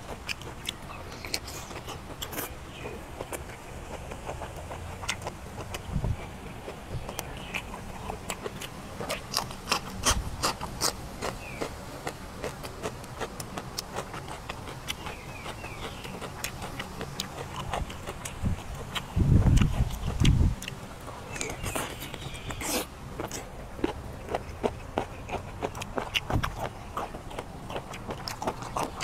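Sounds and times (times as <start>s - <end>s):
dull low thumps: 5.8s - 6.2s, 19.2s - 20.6s.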